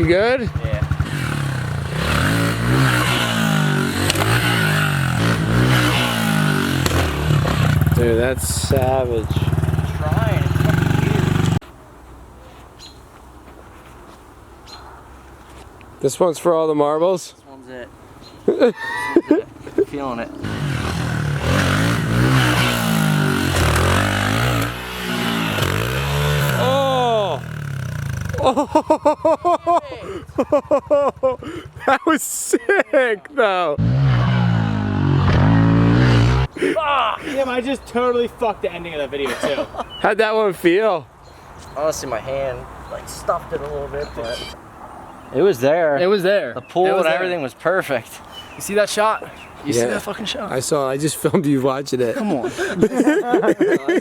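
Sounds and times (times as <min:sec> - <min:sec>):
motorbike engine revving: 0:00.0 - 0:11.6, 0:20.3 - 0:28.7, 0:33.8 - 0:36.6.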